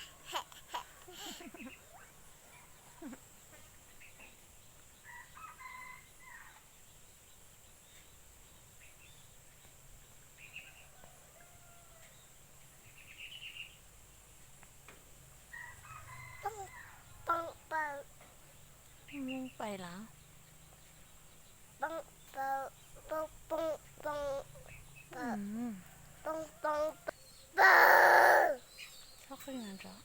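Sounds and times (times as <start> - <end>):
rooster crowing faintly: 10.6 - 12.2, 15.5 - 17.8, 25.7 - 28.6
faint bird calls: 15.5 - 18.2, 21.8 - 30.0.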